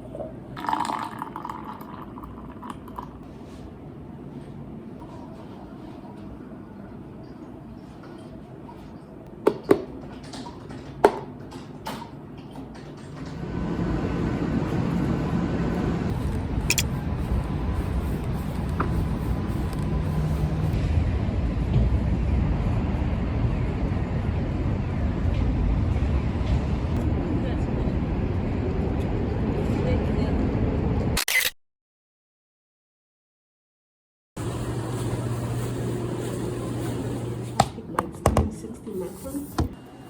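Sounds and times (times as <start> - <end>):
steady low rumbling: 13.4 - 31.2.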